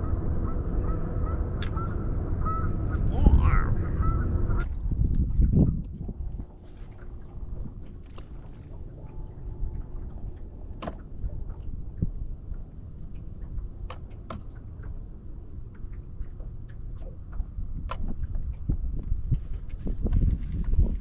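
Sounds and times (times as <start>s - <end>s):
low rumble of wind and water: 0.0s - 21.0s.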